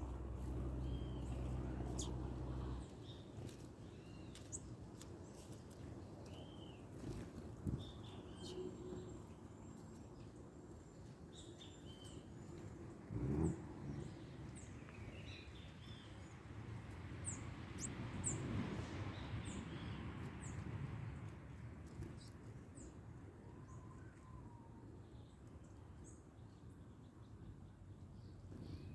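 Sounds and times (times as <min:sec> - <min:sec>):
small birds chirping: 0:00.0 - 0:13.0, 0:13.9 - 0:18.5, 0:19.1 - 0:23.0
outdoor background noise: 0:00.0 - 0:28.9.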